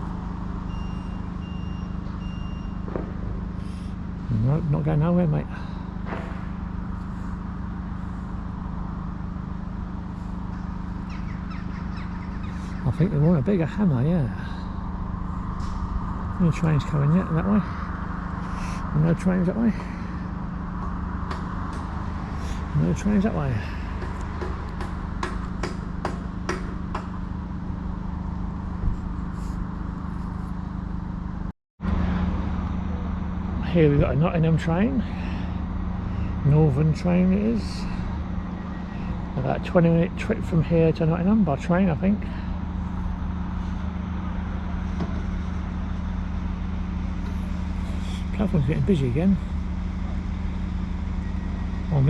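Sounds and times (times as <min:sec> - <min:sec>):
low engine hum: 0:00.0 - 0:52.0
low mechanical drone: 0:00.0 - 0:52.0
hammer striking metal: 0:23.9 - 0:27.2.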